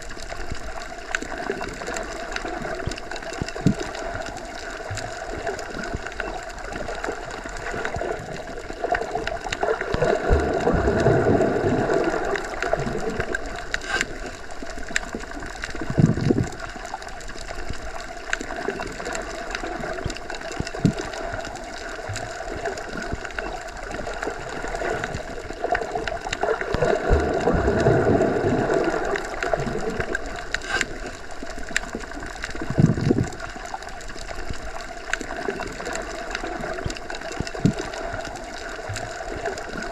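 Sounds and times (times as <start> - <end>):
faint clicks: 0.0 - 11.4, 12.0 - 28.0, 28.6 - 39.9
muffled underwater wash: 0.0 - 39.9.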